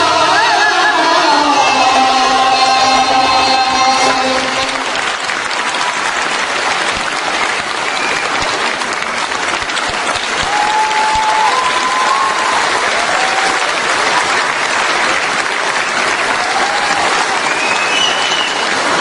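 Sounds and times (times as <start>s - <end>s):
child singing with accompaniment: 0.0s - 5.0s
audience applause and cheering: 0.0s - 19.0s.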